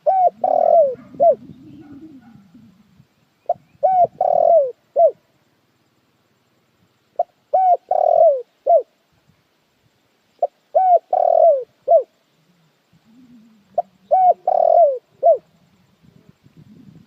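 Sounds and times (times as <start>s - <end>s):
dove cooing: 0.0s - 5.2s, 7.2s - 8.9s, 10.4s - 17.0s.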